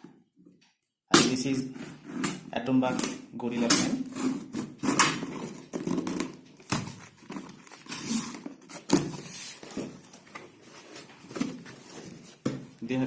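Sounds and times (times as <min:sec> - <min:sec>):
cardboard box rustling: 0:04.1 - 0:12.8.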